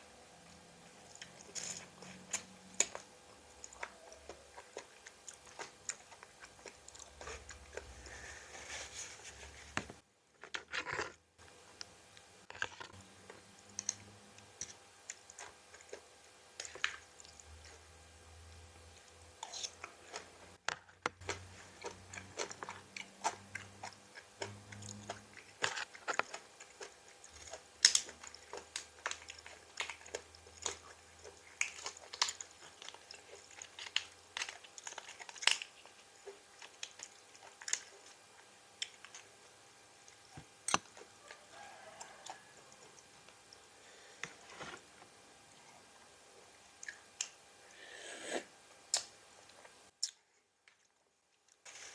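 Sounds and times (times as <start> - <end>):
chewing crisp raw vegetables: 1.0 - 8.4, 21.2 - 44.9.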